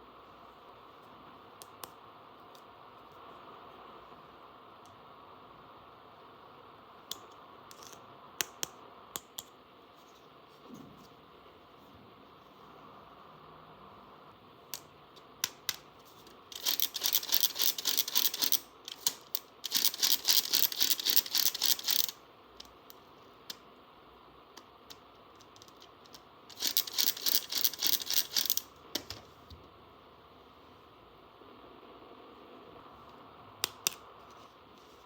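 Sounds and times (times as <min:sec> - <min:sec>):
plastic toy parts clicking: 0:16.5 - 0:22.8, 0:24.9 - 0:29.2.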